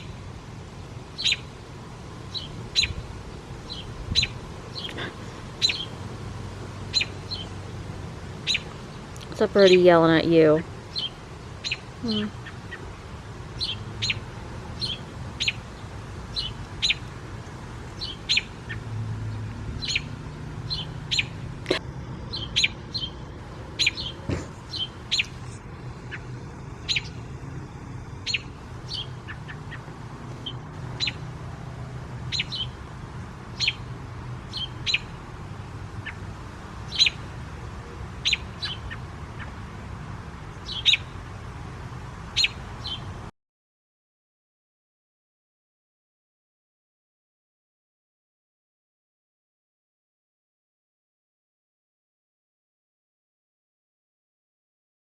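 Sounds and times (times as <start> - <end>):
robin alarm calls: 1.2 - 1.5, 2.3 - 6.0, 6.8 - 7.6, 8.4 - 12.9, 13.5 - 17.1, 17.9 - 18.9, 19.8 - 27.3, 28.2 - 31.3, 32.3 - 32.8, 33.5 - 33.9, 34.5 - 35.2, 36.0 - 36.3, 36.9 - 37.2, 38.2 - 39.6, 40.6 - 41.2, 42.3 - 43.1.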